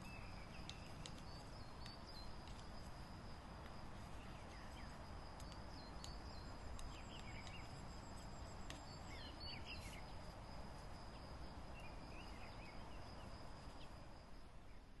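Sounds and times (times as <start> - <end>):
small birds chirping: 0.0 - 3.1, 3.9 - 14.0
high continuous whine: 0.0 - 15.0
light clicks: 0.6 - 2.7, 4.5 - 9.0.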